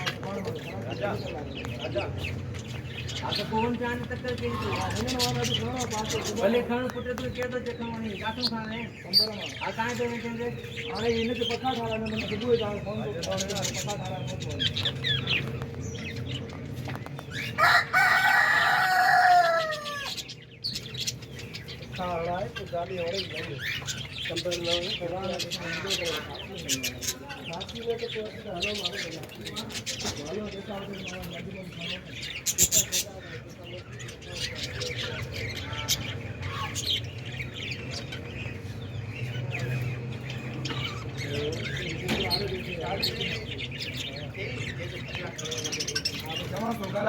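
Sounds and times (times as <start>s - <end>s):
small birds chirping: 0.0s - 47.0s
rooster crowing: 17.6s - 20.2s.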